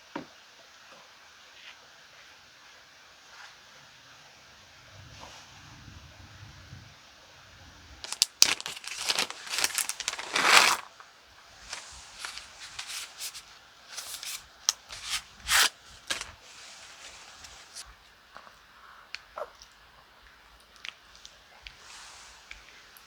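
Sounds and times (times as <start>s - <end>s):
packaging crinkling and tearing: 8.0s - 11.0s, 11.6s - 17.8s.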